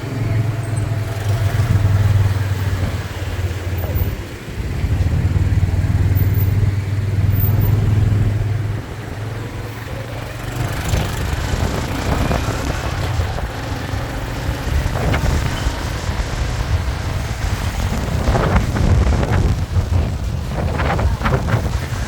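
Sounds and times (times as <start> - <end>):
motorbike engine running: 0.0 - 22.0
road noise: 0.0 - 22.0.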